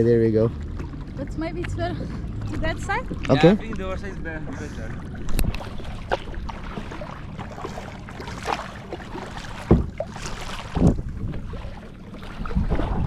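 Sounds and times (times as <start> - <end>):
paddle strokes splashing: 0.5 - 13.0
wind on microphone: 9.6 - 13.0.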